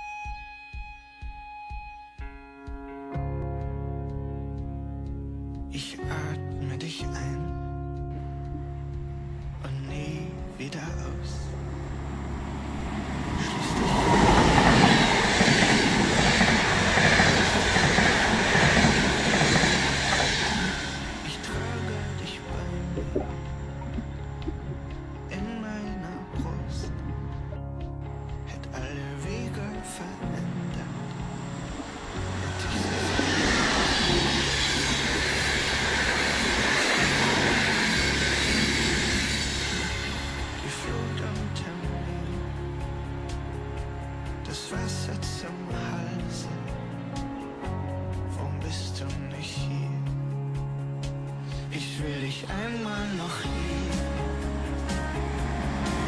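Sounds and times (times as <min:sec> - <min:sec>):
background music with bass: 0:00.0 - 0:56.0
train passing at speed: 0:09.5 - 0:56.0
wheels rumbling on rails: 0:10.9 - 0:49.2, 0:52.0 - 0:56.0.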